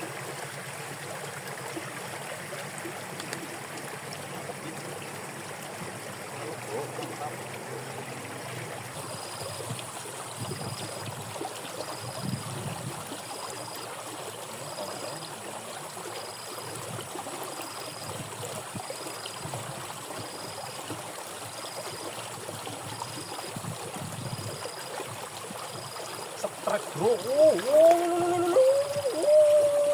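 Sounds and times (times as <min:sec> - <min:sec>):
water running in a ditch: 0:00.0 - 0:29.9
water sloshing: 0:23.8 - 0:29.9.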